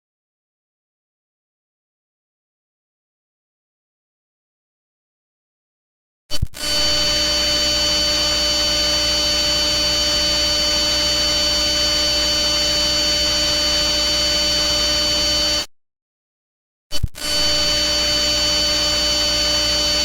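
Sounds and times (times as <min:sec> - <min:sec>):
electronic hum with static hiss: 0:06.5 - 0:15.7, 0:17.1 - 0:20.0.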